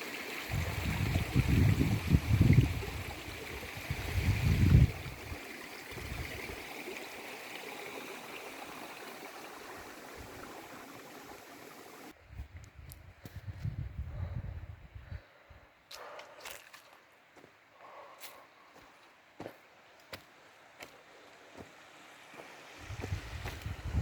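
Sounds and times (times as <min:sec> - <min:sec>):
running water rushing: 0:00.0 - 0:12.2, 0:20.7 - 0:24.0.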